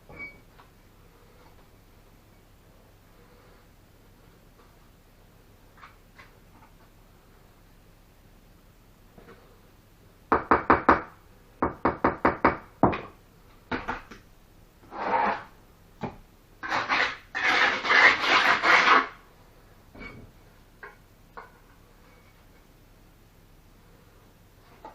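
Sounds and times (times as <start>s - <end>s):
trowel scraping mortar: 14.8s - 15.6s, 16.6s - 19.2s.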